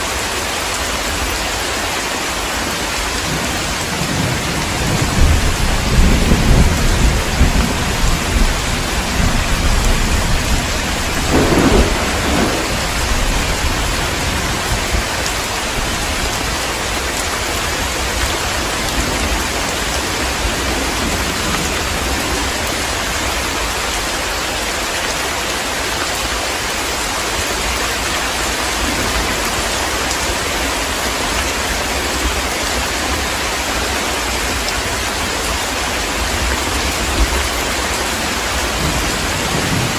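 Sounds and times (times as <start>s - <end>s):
heavy rain downpour: 0.0s - 39.9s
thunder rumble: 3.2s - 23.4s, 36.2s - 39.9s.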